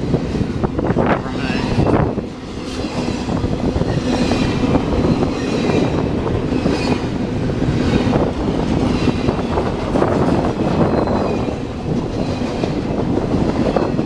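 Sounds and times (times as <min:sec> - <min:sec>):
railroad cars rumbling past: 0:00.0 - 0:14.0
faint high wheel squeal: 0:10.8 - 0:11.6.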